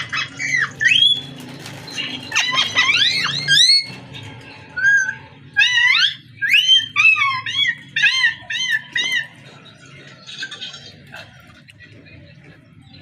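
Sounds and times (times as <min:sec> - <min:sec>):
parrot squawks and whistles: 0:00.0 - 0:01.4.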